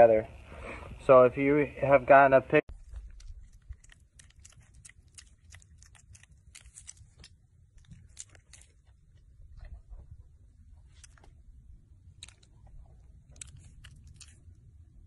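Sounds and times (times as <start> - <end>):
faint crunching clicks: 2.9 - 9.8, 12.2 - 14.5.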